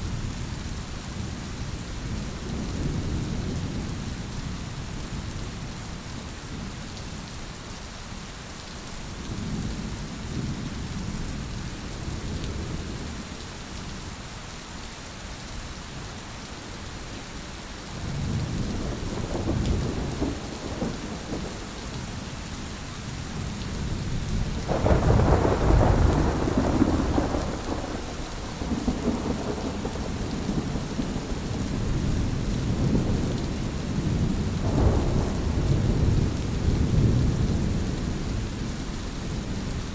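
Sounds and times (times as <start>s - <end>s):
steady rain: 0.0s - 39.9s
rolling thunder: 18.0s - 22.2s, 23.4s - 39.8s.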